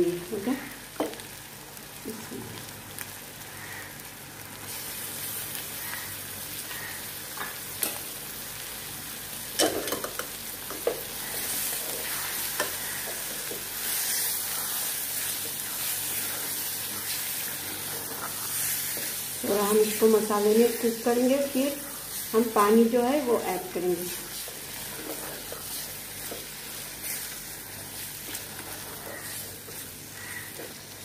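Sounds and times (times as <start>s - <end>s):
meat sizzling in a pot: 0.0s - 31.0s.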